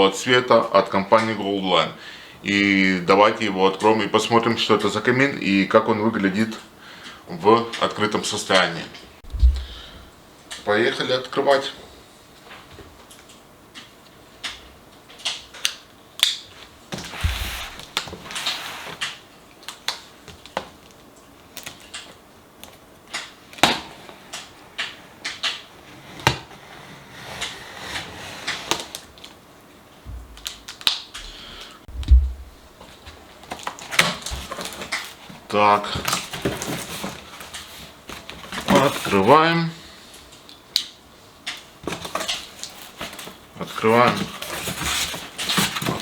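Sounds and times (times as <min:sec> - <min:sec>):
dull thumps: 0:09.2 - 0:10.2, 0:17.0 - 0:18.5, 0:31.9 - 0:32.9
cardboard rustling scrapes: 0:16.9 - 0:19.2, 0:25.8 - 0:29.1, 0:41.9 - 0:46.0
cardboard clicks and crackles: 0:17.0 - 0:19.2.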